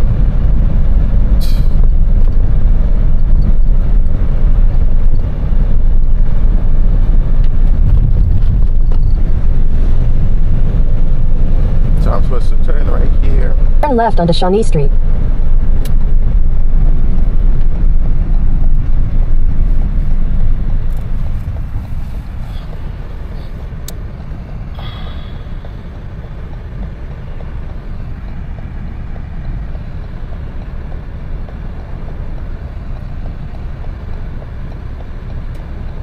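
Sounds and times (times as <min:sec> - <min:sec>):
truck engine and road rumble: 0:00.0 - 0:36.0.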